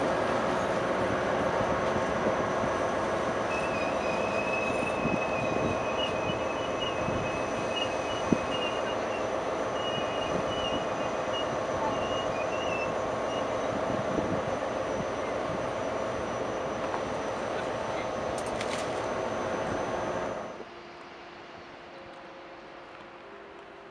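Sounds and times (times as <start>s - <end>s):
train wheels rumbling on rail: 0.0s - 20.4s
high wheel squeal: 1.8s - 20.4s.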